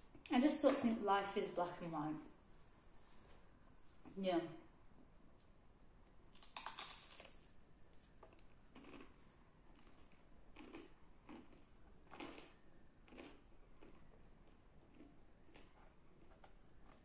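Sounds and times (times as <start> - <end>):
crisp crunch: 6.3 - 17.0
soft chewing: 6.4 - 17.0.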